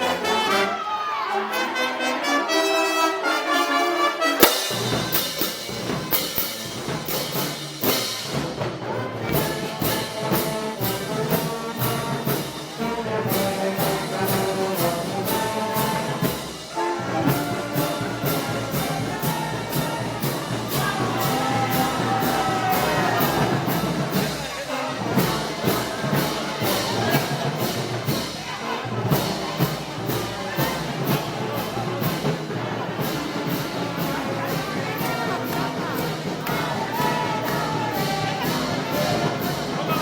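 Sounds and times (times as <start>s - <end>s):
brass band playing: 0.0s - 40.0s
cymbal crash: 4.4s - 8.6s
percussion beat and bass: 4.4s - 40.0s.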